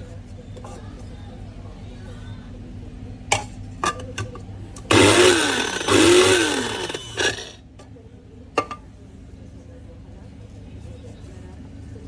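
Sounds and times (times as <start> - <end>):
electric coffee grinder: 4.9 - 7.6.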